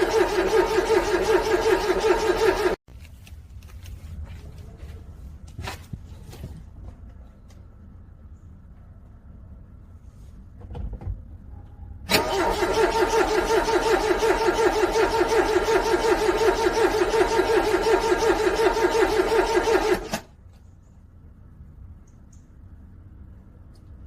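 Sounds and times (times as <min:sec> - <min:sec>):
car starter cranking engine: 0:00.0 - 0:02.8, 0:12.1 - 0:20.3.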